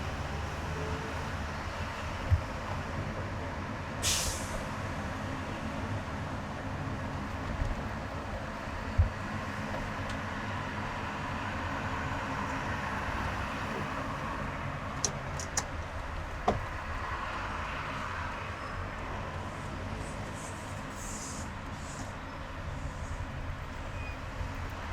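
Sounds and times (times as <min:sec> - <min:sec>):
car road and engine noise: 0:00.0 - 0:24.9.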